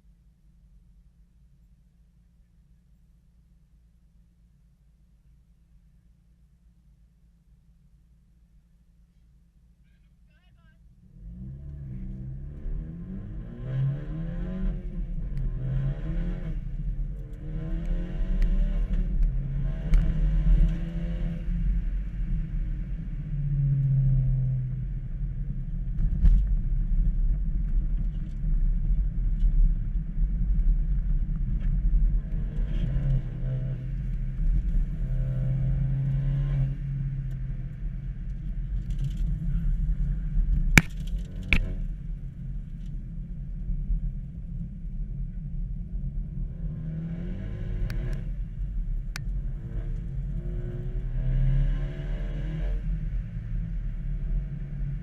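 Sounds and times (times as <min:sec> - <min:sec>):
car engine revving: 0:11.0 - 0:21.8.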